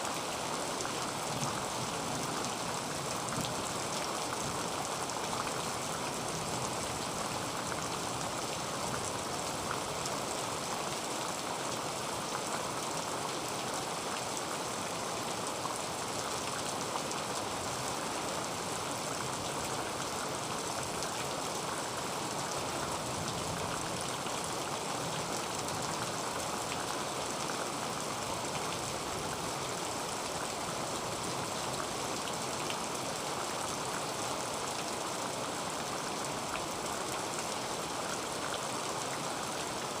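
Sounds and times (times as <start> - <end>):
heavy rain on a tin roof: 0.0 - 40.0.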